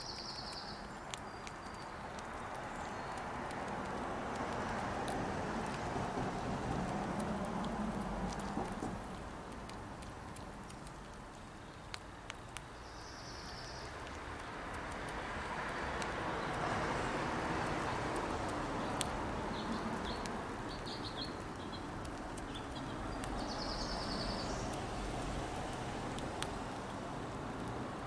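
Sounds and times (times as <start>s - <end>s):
small birds chirping: 0.0s - 3.6s, 9.4s - 25.3s
sharp clicks: 6.7s - 12.7s.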